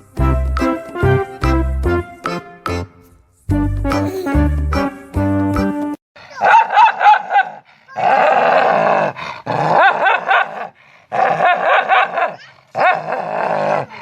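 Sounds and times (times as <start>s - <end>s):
dog barking and yipping: 6.3s - 8.4s, 11.3s - 13.0s
dog growling: 12.8s - 14.0s.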